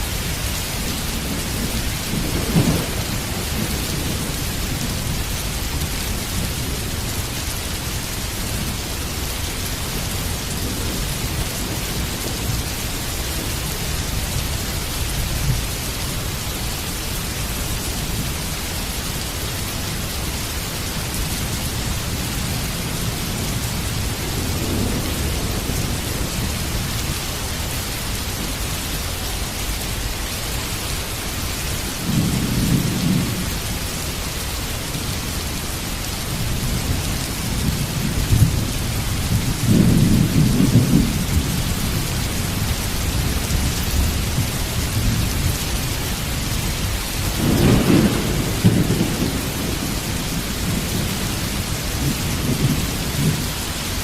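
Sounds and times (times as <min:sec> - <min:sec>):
heavy rain: 0:00.0 - 0:54.0
thunder rumbling: 0:00.1 - 0:14.6, 0:36.4 - 0:54.0.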